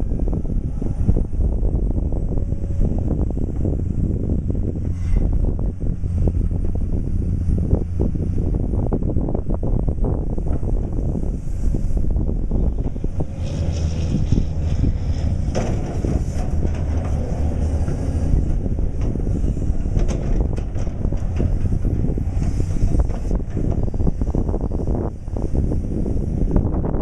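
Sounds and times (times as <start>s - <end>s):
diesel engine rumbling: 0.0s - 27.0s
wind buffeting microphone: 0.0s - 27.0s.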